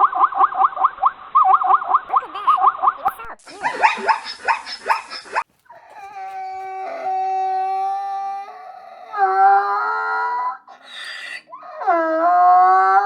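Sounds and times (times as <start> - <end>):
rustling: 4.7 - 7.2
dog howling: 5.7 - 13.0.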